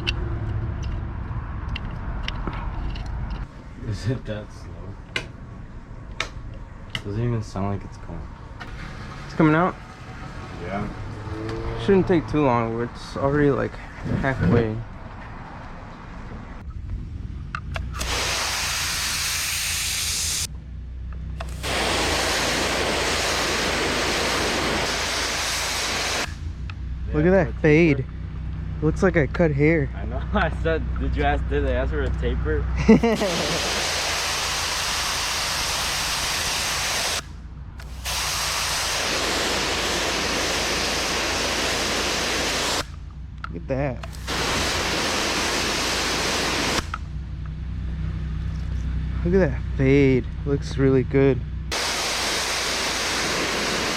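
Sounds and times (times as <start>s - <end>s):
engine humming: 0.0s - 18.0s, 20.4s - 53.9s
pressure washer spraying concrete: 18.0s - 20.5s, 21.4s - 26.4s, 32.9s - 37.2s, 37.8s - 42.9s, 44.1s - 46.9s, 51.7s - 53.9s
pressure washer machine hum: 21.4s - 26.4s, 33.0s - 37.2s, 37.8s - 42.9s, 44.0s - 47.0s, 51.7s - 53.9s.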